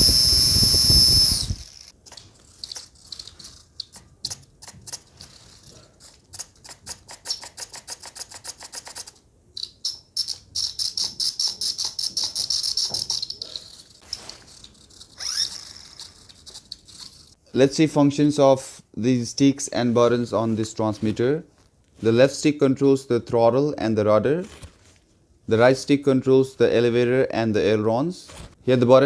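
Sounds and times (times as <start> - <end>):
loud high whine: 0.0 - 1.9
servos buzzing and ticking: 0.0 - 17.4.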